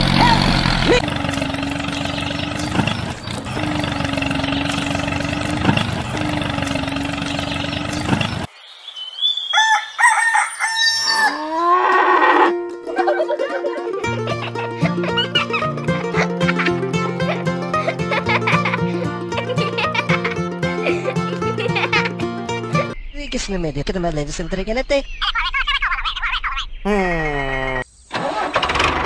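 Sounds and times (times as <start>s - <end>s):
small motor humming and grinding: 0.0s - 8.5s
rooster crowing: 9.5s - 12.5s
music: 12.5s - 23.0s.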